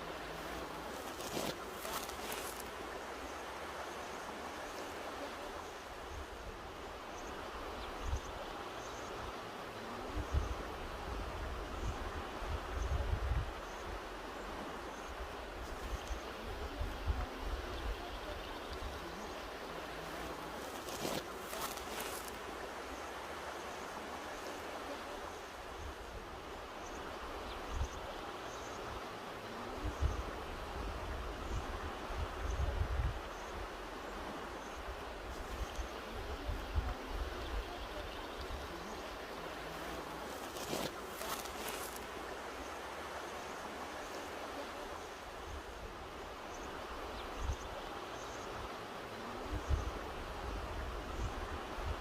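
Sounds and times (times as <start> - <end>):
river rushing: 0.0 - 52.0.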